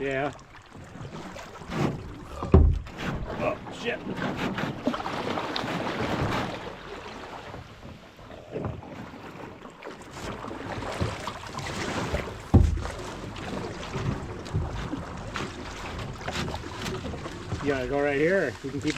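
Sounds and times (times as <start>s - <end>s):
paddle strokes: 0.0s - 18.9s
water sloshing against hull: 0.0s - 18.9s
loud low thump: 2.3s - 3.3s.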